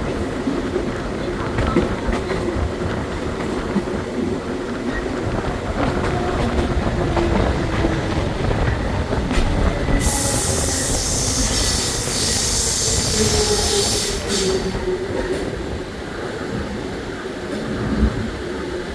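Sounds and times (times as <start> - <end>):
electric train rumbling on track: 0.0 - 18.9
high-pitched hiss: 10.0 - 14.8.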